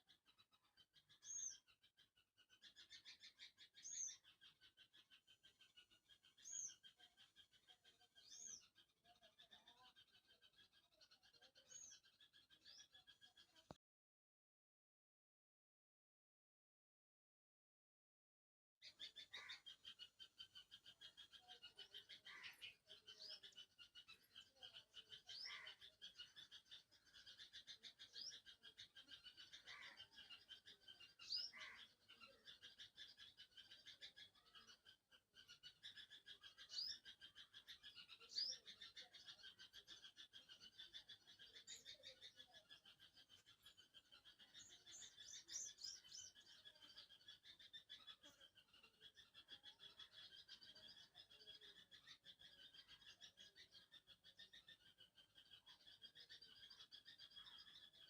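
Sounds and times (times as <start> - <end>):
fast pulsing animal chatter: 20.0 - 58.0.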